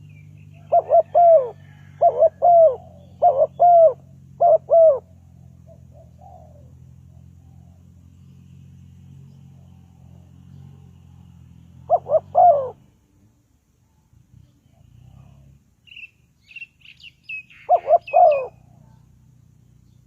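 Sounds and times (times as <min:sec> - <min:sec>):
dove cooing: 0:00.0 - 0:07.9, 0:09.7 - 0:13.0, 0:17.5 - 0:19.1
steady low hum: 0:00.0 - 0:16.8.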